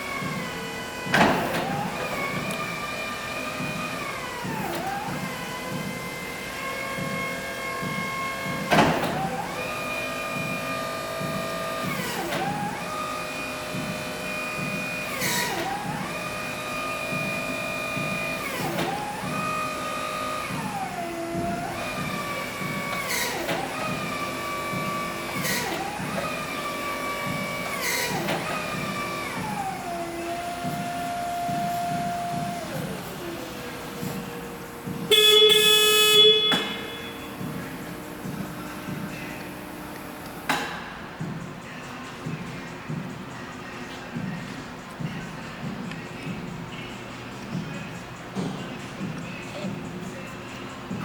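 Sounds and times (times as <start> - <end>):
electric motors whining: 0.0 - 40.6.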